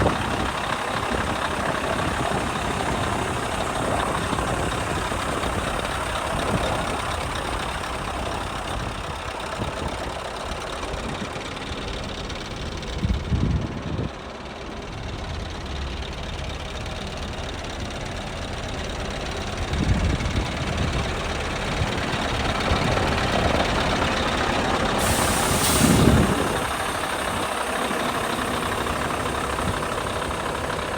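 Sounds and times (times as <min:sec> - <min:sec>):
truck diesel engine running: 0:00.0 - 0:30.9
compressed air hiss: 0:25.0 - 0:28.8.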